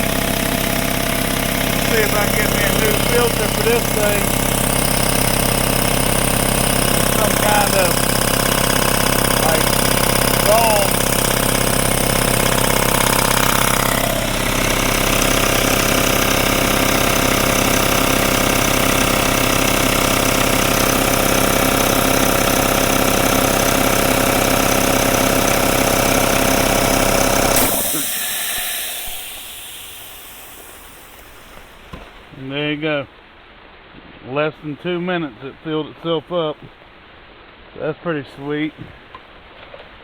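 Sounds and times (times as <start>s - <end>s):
air compressor running: 0.0s - 32.4s
hiss of escaping air: 27.6s - 32.3s.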